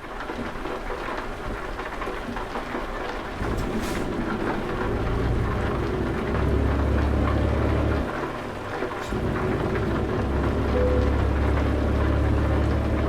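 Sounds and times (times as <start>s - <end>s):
steady rain: 0.0s - 13.0s
deep low rumble: 9.1s - 13.0s.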